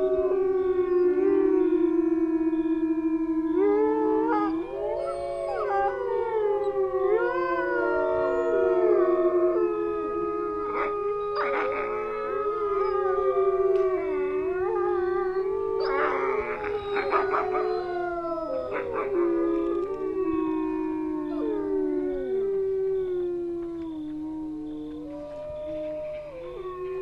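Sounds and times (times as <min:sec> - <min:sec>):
wolves howling: 0:00.0 - 0:27.0
wolves yipping: 0:10.6 - 0:13.1, 0:15.2 - 0:22.2.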